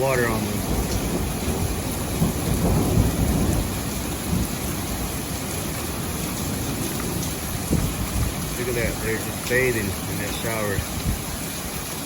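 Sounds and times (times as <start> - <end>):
thunder rumble: 0.0 - 11.5
heavy rain pouring: 0.0 - 12.0.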